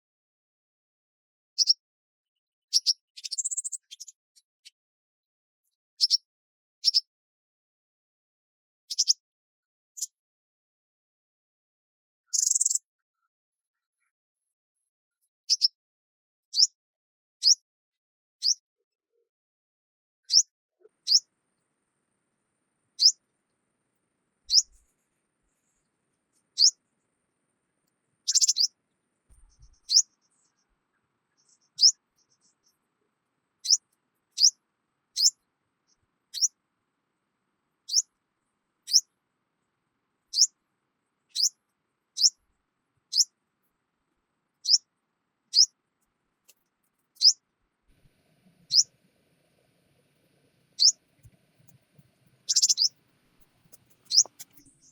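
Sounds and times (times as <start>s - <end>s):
bird chirping: 1.6s - 1.8s, 2.7s - 4.8s, 6.0s - 6.2s, 6.8s - 7.1s, 8.9s - 9.2s, 12.3s - 12.8s, 15.5s - 15.8s, 20.3s - 21.3s, 23.0s - 23.2s, 24.5s - 26.8s, 28.2s - 32.9s, 33.6s - 36.6s, 37.8s - 38.1s, 38.8s - 39.1s, 40.3s - 40.6s, 41.3s - 42.4s, 43.1s - 43.3s, 44.6s - 44.9s, 45.5s - 45.8s, 46.5s - 47.4s, 48.6s - 49.0s, 50.7s - 54.9s.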